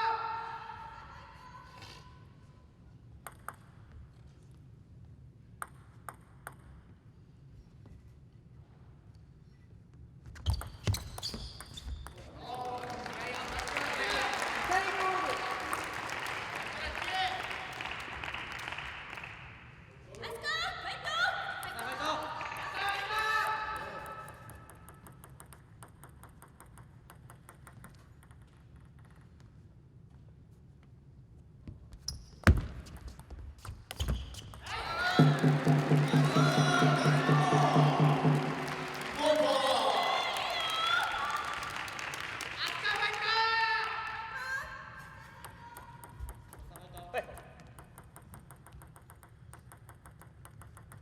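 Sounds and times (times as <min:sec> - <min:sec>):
low hum of hall: 0:00.0 - 0:51.0
table tennis ball bouncing: 0:03.1 - 0:04.2, 0:05.6 - 0:07.0, 0:10.4 - 0:12.3, 0:23.8 - 0:29.6, 0:32.5 - 0:39.8, 0:45.4 - 0:51.0.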